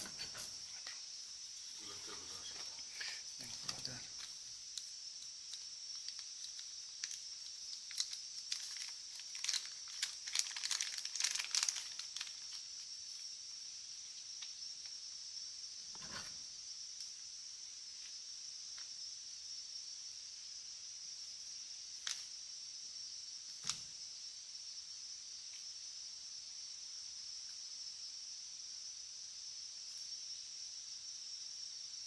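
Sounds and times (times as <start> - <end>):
steady high hiss: 0.0 - 32.0
crinkling and clicking handling: 1.8 - 4.9, 5.5 - 12.9.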